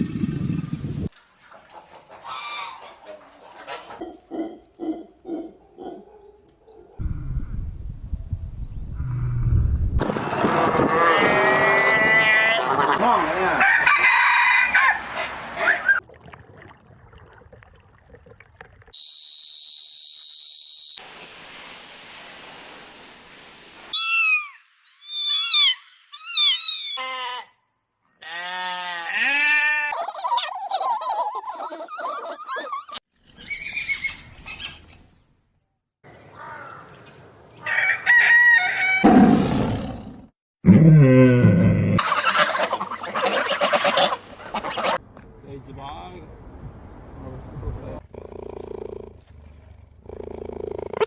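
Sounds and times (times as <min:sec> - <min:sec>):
hens clucking: 0:01.4 - 0:06.0, 0:42.0 - 0:45.0
rooster crowing: 0:13.6 - 0:15.3, 0:37.6 - 0:39.2
high-pitched whistle: 0:19.0 - 0:21.0
steady hiss: 0:21.0 - 0:24.0.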